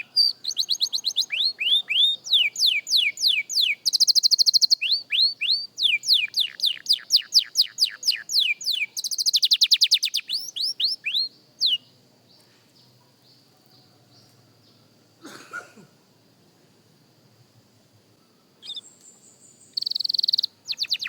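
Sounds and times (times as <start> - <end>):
canary singing: 0.0 - 12.0, 18.6 - 21.0.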